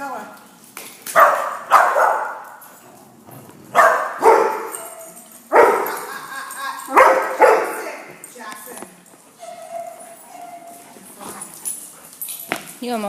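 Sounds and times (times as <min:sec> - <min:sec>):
dog barking: 0:01.2 - 0:02.4, 0:03.7 - 0:04.8, 0:05.5 - 0:06.0, 0:06.9 - 0:07.9.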